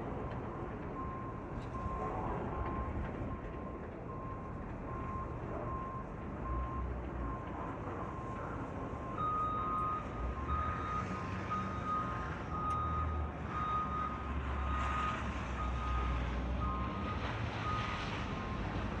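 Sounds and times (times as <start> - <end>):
truck backup alarm beeping: 9.0 - 18.7.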